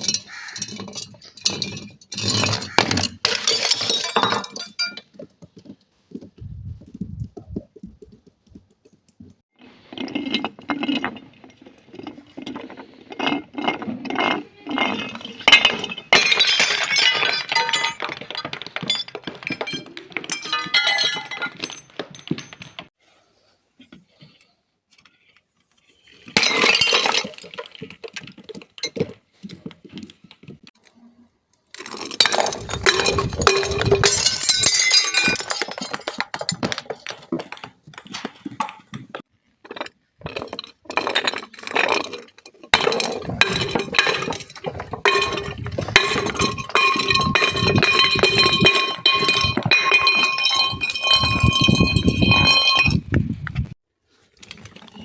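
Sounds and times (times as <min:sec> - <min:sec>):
glass pieces ringing: 0:00.0 - 0:05.0, 0:15.5 - 0:22.8, 0:32.0 - 0:37.7, 0:41.1 - 0:53.7
glass crushing and breaking: 0:00.0 - 0:05.1, 0:14.7 - 0:22.9, 0:26.3 - 0:29.0, 0:31.8 - 0:53.7.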